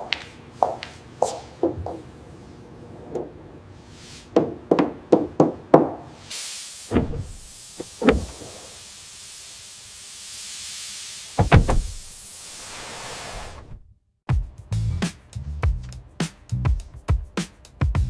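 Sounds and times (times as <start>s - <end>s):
steady hiss: 6.2s - 13.8s
deep thuds: 6.9s - 8.5s, 11.4s - 12.2s
quick knocks: 7.8s - 8.5s, 11.4s - 12.1s.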